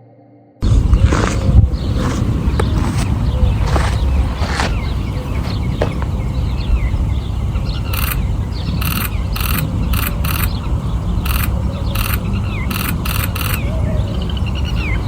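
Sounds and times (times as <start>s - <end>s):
faint bird chirps: 0.6s - 15.0s
low rumble: 0.6s - 15.0s
camera shutter bursts: 7.9s - 10.6s, 11.2s - 13.8s.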